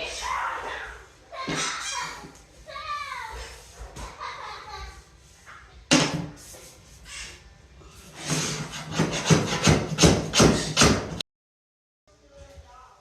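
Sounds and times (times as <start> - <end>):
scraping strokes on vinyl flooring: 6.3 - 9.7.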